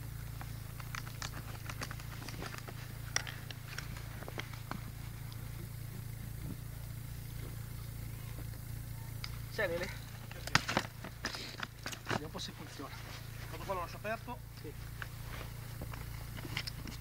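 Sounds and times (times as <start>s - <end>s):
car engine idling: 0.0s - 17.0s
strap bindings clicking: 0.2s - 5.8s, 10.2s - 12.6s, 14.5s - 17.0s
snow crunching: 9.4s - 17.0s.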